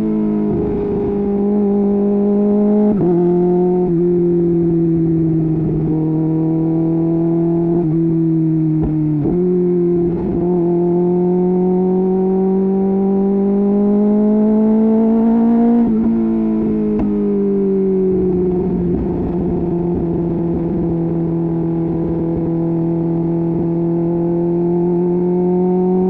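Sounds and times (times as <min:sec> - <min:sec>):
motorcycle engine at speed: 0:00.0 - 0:26.0.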